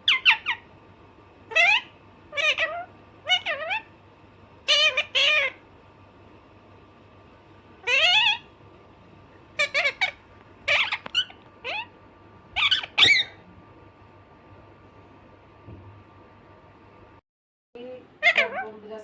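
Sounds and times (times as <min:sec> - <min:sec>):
parakeet squawking: 0:00.0 - 0:00.7, 0:01.5 - 0:04.0, 0:04.6 - 0:05.6, 0:07.8 - 0:08.6, 0:09.5 - 0:13.4, 0:18.2 - 0:18.8.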